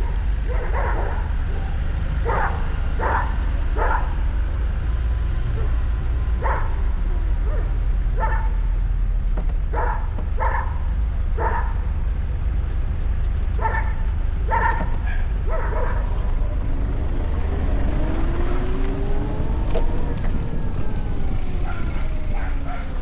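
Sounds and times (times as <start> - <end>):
dog barking: 0.0 - 4.2, 6.4 - 8.8, 9.7 - 11.9, 13.6 - 16.3, 20.8 - 23.0
low wind: 0.0 - 23.0
road rumble: 0.0 - 23.0
rising whine: 14.7 - 23.0.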